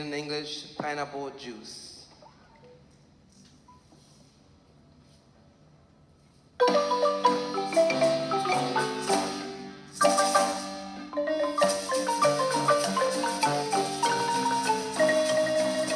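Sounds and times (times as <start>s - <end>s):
marimba tune: 6.6s - 15.9s.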